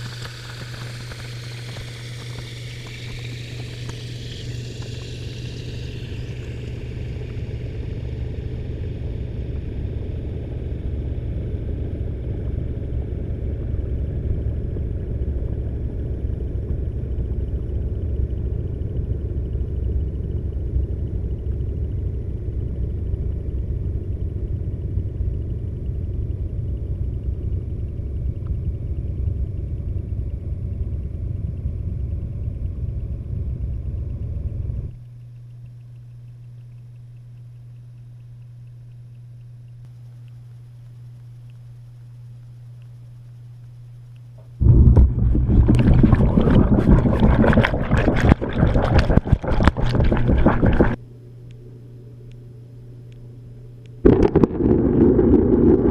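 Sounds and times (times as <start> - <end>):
water hiss: 0.0 - 7.2
washing machine running: 0.0 - 10.2, 44.6 - 51.0
low rumble: 44.4 - 51.0, 54.0 - 55.9.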